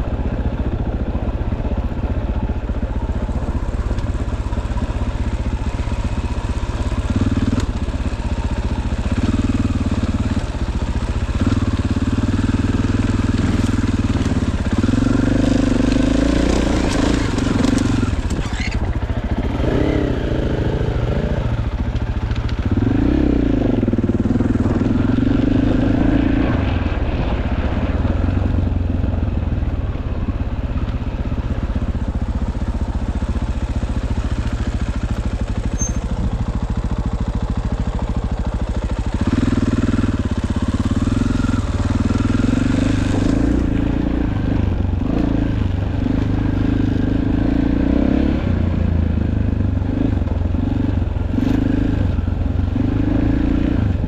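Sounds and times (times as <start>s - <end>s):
dirt bike engine revving: 11.3s - 22.0s, 22.6s - 26.8s, 39.2s - 48.6s.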